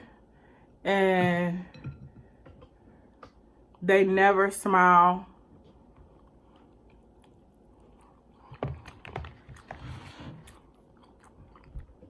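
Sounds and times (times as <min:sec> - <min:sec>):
close-miked chewing: 0:05.6 - 0:12.0.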